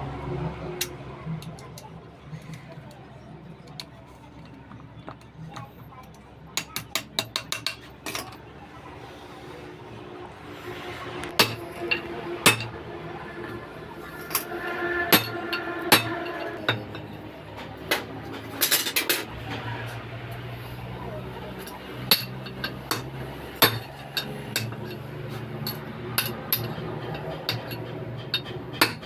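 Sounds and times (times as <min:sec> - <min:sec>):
hammer striking metal: 0:11.3 - 0:19.3, 0:21.6 - 0:29.0.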